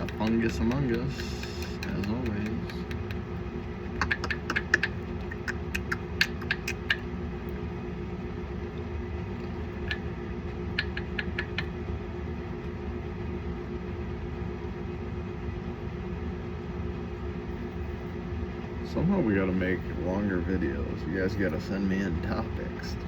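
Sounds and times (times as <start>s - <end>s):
quick light clicks and taps: 0.0s - 3.3s, 3.9s - 7.1s, 10.7s - 11.7s
steady low hum: 0.0s - 23.0s.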